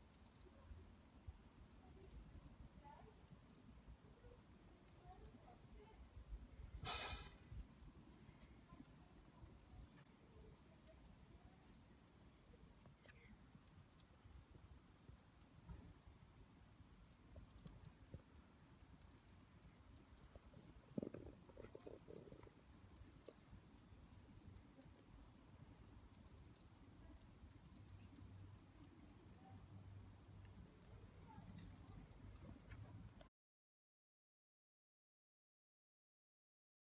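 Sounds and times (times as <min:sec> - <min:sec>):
insects chirping: 0:18.7 - 0:23.4, 0:25.9 - 0:29.8.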